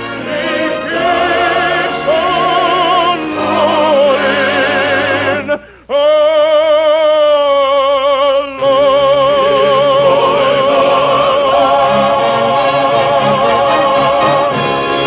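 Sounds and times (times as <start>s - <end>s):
orchestra: 0.0s - 5.6s, 8.6s - 15.0s
person singing with vibrato: 0.0s - 14.7s.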